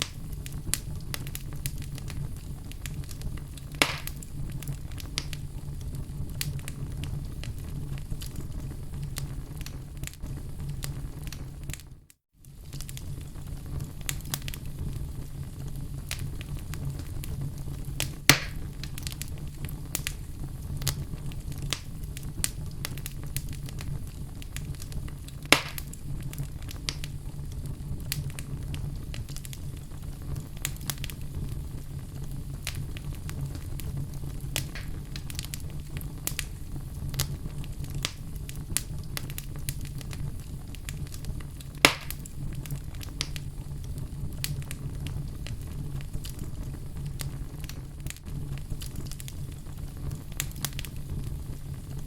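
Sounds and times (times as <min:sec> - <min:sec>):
fire crackling: 0:00.0 - 0:52.0
loud fire pops: 0:00.0 - 0:52.0
low rumble of flames: 0:00.0 - 0:52.0.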